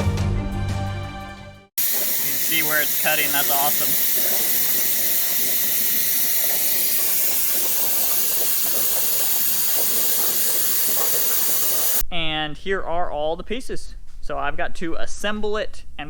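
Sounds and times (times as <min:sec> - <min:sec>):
plasma torch cutting steel hiss: 0:01.8 - 0:12.0.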